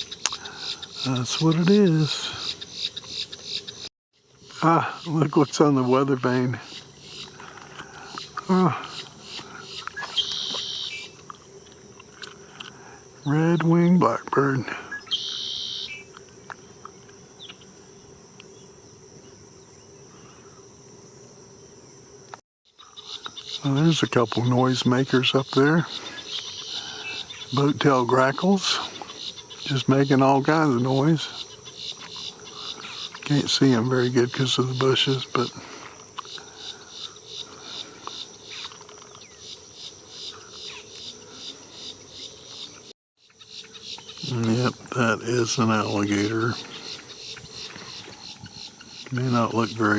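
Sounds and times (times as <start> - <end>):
grackles calling: 0.0 - 3.9, 6.6 - 11.2, 14.9 - 16.1, 25.3 - 27.7, 28.6 - 30.1, 30.9 - 33.3, 34.8 - 44.3
steady high pulsing chirping: 0.0 - 12.0, 12.9 - 20.8, 22.7 - 49.9
insects droning: 0.0 - 49.9.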